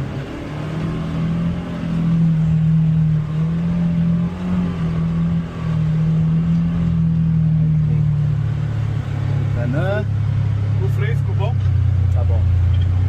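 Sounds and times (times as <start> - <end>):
utility vehicle engine running: 0.0 - 13.0.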